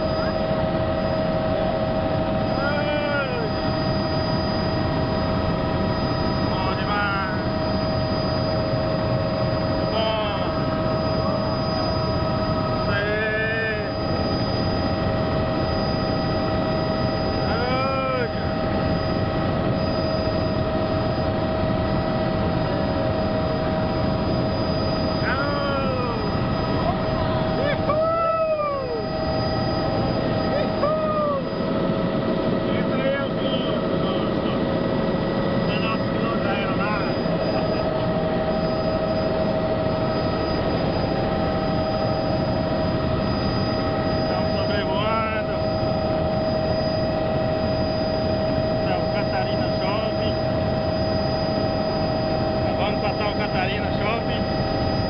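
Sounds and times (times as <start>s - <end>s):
constant whining tones: 0.0s - 55.0s
helicopter engine and rotor noise: 0.0s - 55.0s.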